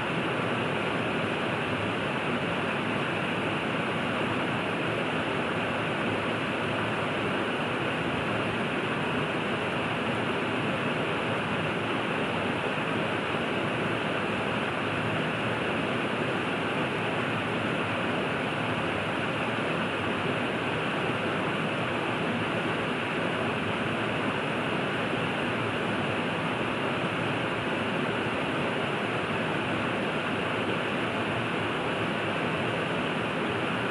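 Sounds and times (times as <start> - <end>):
river rushing: 0.1 - 33.9.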